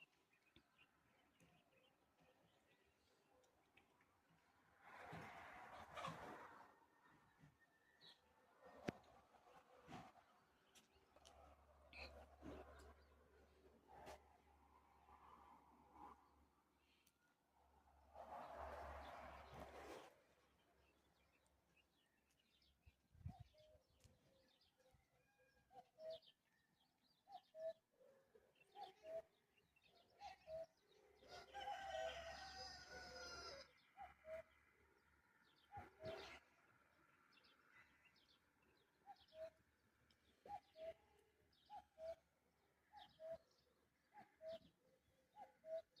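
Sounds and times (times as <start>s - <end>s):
faint birds calling: 37.4s - 46.0s.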